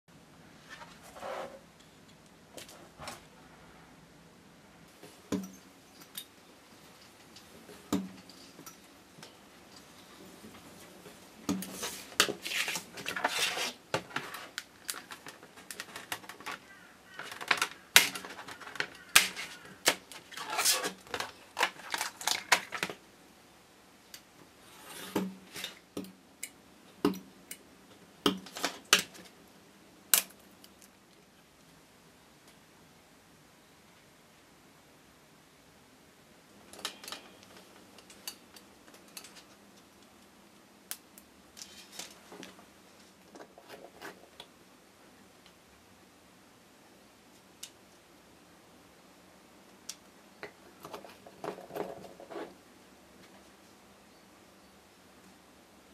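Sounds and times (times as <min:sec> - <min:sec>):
tools tapping and clicking: 0:05.3 - 0:06.4, 0:25.2 - 0:27.6
rapid scraping or cutting: 0:11.7 - 0:14.5.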